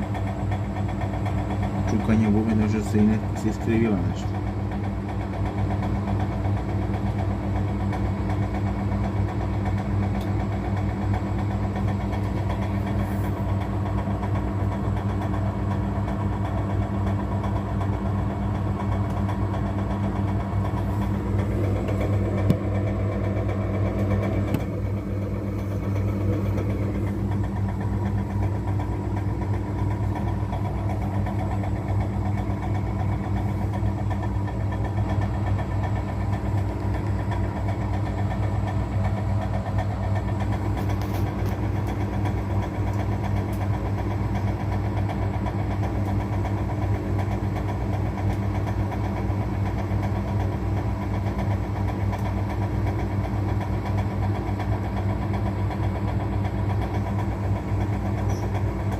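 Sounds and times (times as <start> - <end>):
washing machine hum: 0.0 - 58.9
knocking inside washing machine drum: 13.5 - 38.3.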